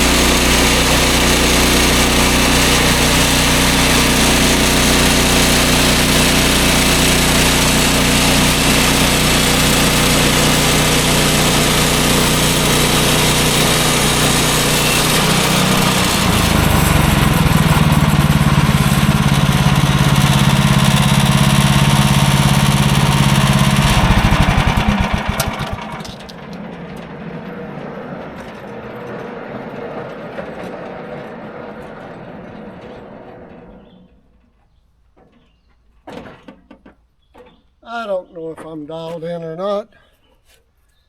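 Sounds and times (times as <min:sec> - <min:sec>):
small gasoline engine running: 0:00.0 - 0:32.8.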